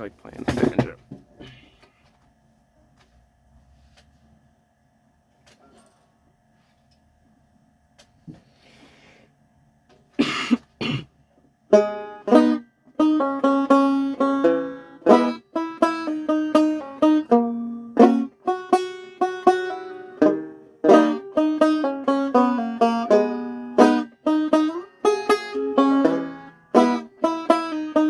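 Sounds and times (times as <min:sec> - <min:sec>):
banjo picking: 0:11.7 - 0:28.0.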